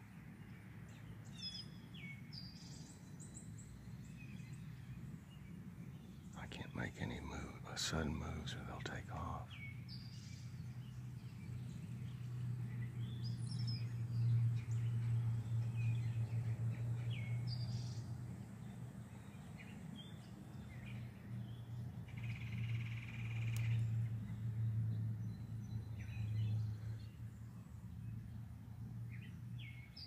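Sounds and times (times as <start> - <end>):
constant low hum: 0.0 - 30.0
songbirds chirping: 0.0 - 30.0.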